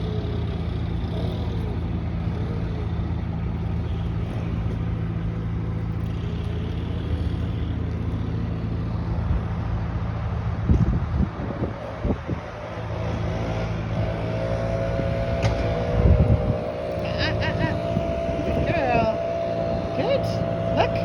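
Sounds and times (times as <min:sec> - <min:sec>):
machinery engine drone: 0:00.0 - 0:21.0
wavering tone: 0:12.8 - 0:21.0.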